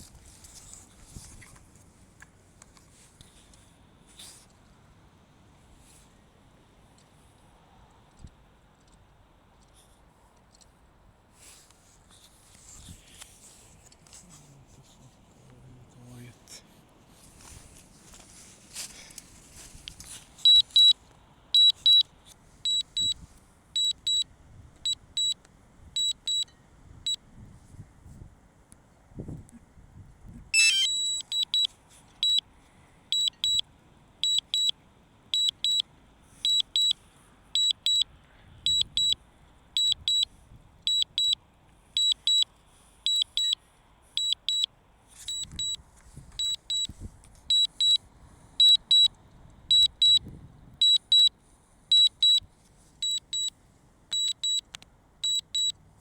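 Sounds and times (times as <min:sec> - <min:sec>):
brief hiss: 0:11.4 - 0:14.4
short high-pitched warning beeps: 0:20.5 - 0:21.0, 0:21.6 - 0:22.1, 0:22.7 - 0:23.2, 0:23.8 - 0:24.2, 0:26.0 - 0:26.6, 0:30.6 - 0:32.4, 0:33.1 - 0:33.6, 0:34.2 - 0:34.7, 0:35.4 - 0:35.8, 0:36.4 - 0:37.0, 0:37.6 - 0:39.2, 0:39.8 - 0:40.3, 0:40.9 - 0:41.4, 0:42.0 - 0:42.5, 0:43.1 - 0:43.6, 0:44.2 - 0:44.7, 0:45.3 - 0:45.8, 0:46.4 - 0:46.9, 0:47.5 - 0:48.0, 0:48.6 - 0:49.1, 0:49.7 - 0:50.2, 0:50.8 - 0:51.3, 0:51.9 - 0:52.4, 0:53.0 - 0:53.5, 0:54.1 - 0:55.8.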